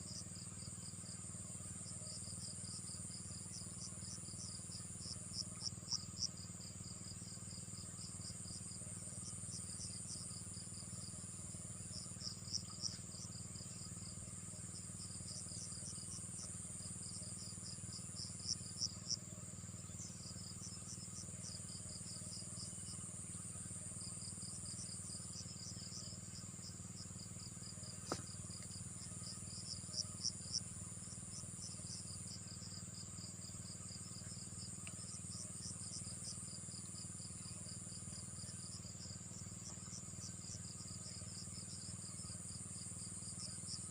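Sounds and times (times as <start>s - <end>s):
crickets chirping: 0.0s - 43.9s.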